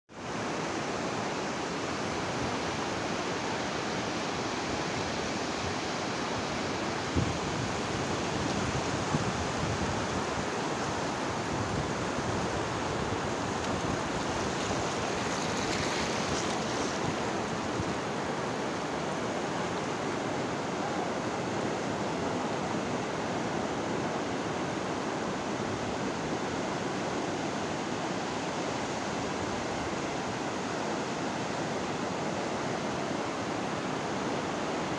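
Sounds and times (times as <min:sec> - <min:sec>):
sea waves breaking on shore: 0:00.2 - 0:34.9.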